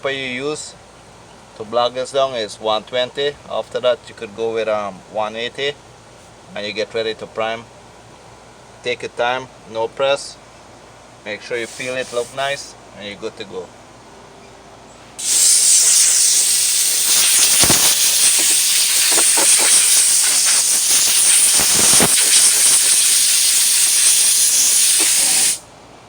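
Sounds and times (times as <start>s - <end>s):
air blow gun hissing: 11.5s - 12.6s, 15.2s - 25.7s.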